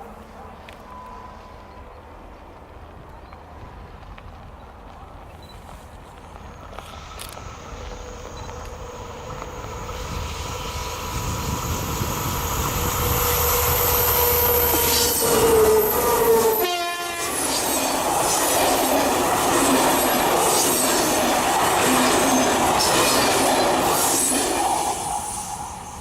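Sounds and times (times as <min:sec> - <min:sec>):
train wheels rattling: 0:04.3 - 0:26.0
diesel train passing: 0:05.9 - 0:26.0
train horn: 0:12.7 - 0:17.6.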